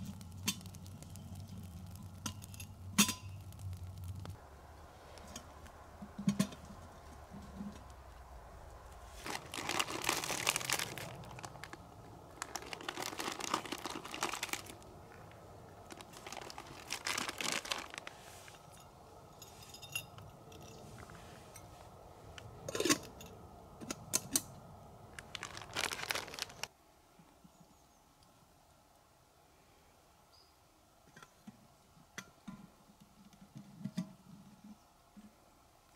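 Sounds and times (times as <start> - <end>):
dry material crunching and crinkling: 0.0 - 4.4, 6.8 - 18.8, 25.1 - 26.7.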